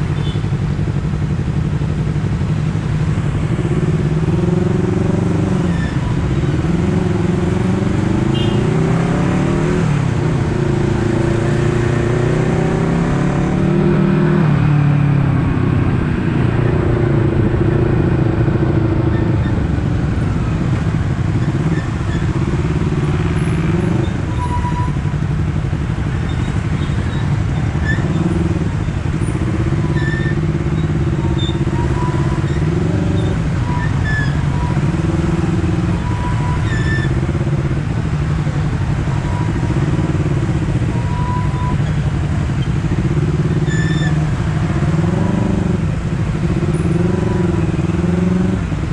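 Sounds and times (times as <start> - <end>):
motorcycle engine accelerating: 3.1 - 24.4.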